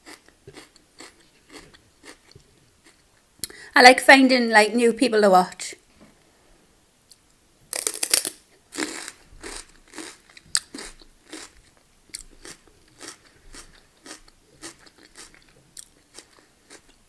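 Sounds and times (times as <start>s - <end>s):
crunchy chewing: 0.0s - 3.0s, 7.7s - 17.0s
crunchy bite into food: 7.7s - 11.6s.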